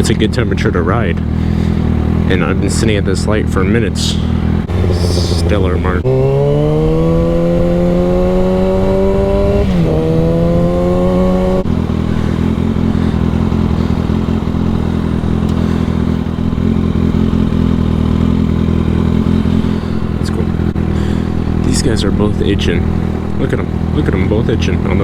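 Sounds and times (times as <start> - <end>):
motorcycle engine accelerating: 0.0 - 25.0
motorcycle engine idling: 0.0 - 25.0.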